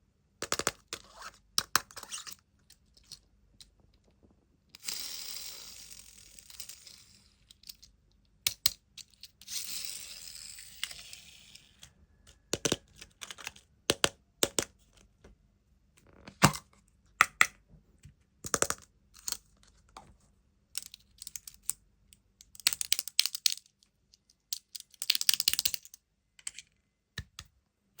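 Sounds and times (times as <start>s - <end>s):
plastic toys clicking and tapping: 6.4s - 9.4s, 11.8s - 15.0s, 18.4s - 19.5s, 20.8s - 27.5s.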